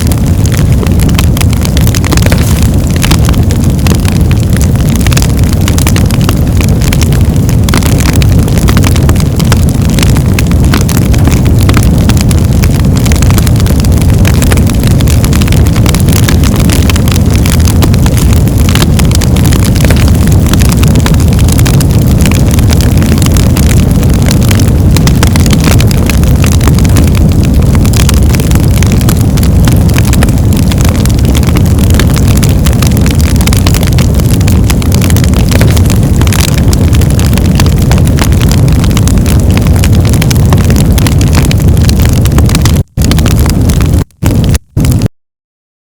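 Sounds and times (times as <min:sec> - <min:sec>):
fire crackling and popping: 0:00.0 - 0:45.1
fire rumbling: 0:00.0 - 0:45.1.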